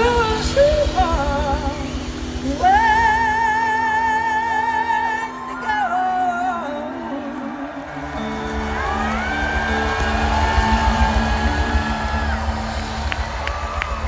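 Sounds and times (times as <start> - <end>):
blues rock band playing: 7.9 - 14.0.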